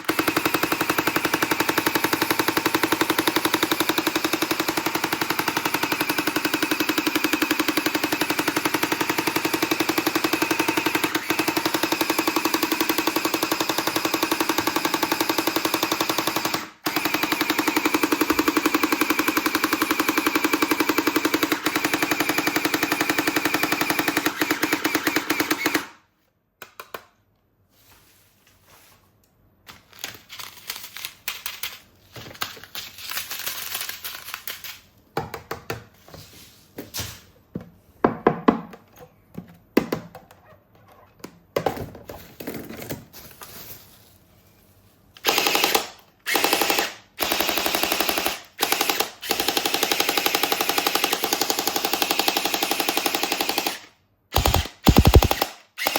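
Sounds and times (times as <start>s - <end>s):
toy gun machine-gun sound effect: 45.2s - 55.9s.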